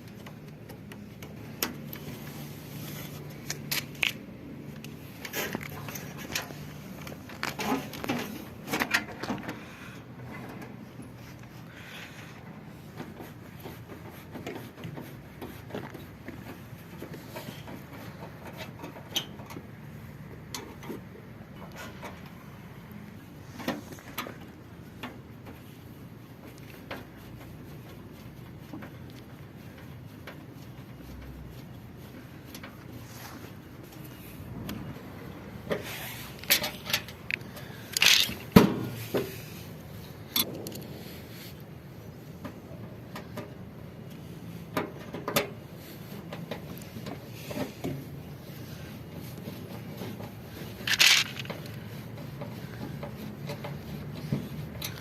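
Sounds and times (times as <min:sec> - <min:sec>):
rubbing and scraping parts: 0:00.0 - 0:55.0
tools clicking and knocking on metal: 0:36.4 - 0:39.3, 0:44.7 - 0:45.6.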